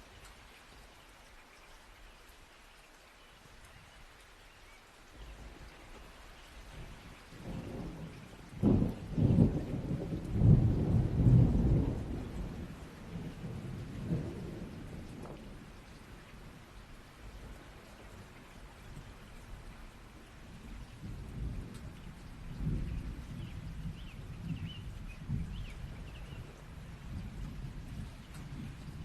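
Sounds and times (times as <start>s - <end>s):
steady rain: 0.0s - 29.0s
thunder rumbling and cracking: 6.8s - 16.0s, 20.5s - 29.0s.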